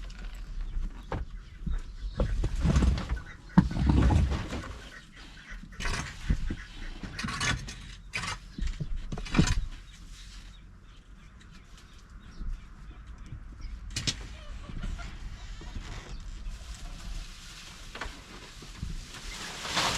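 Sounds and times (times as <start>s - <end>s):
rustling: 15.4s - 19.9s.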